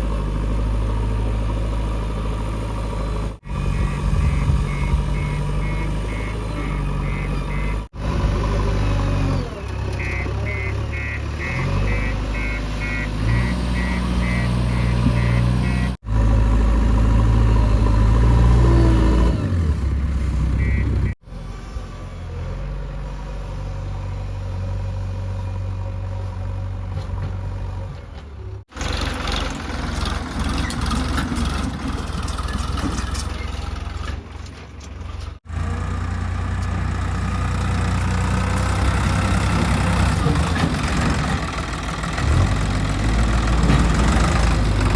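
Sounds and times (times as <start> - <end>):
diesel engines revving under load: 0.0 - 44.9
reversing alarm beeping: 3.7 - 7.9, 10.0 - 16.0, 20.6 - 21.2.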